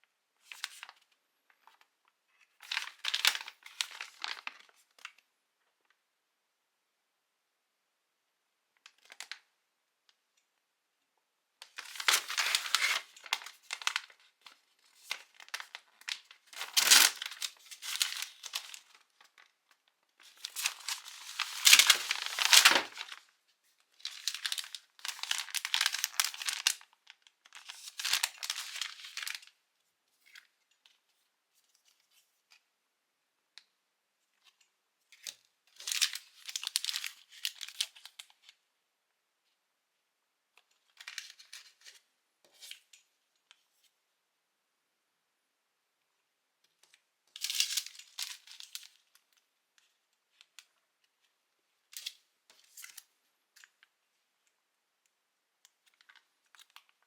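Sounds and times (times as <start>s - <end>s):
packaging tearing and crinkling: 11.8s - 19.4s, 20.2s - 23.2s, 24.0s - 26.9s, 35.8s - 38.2s.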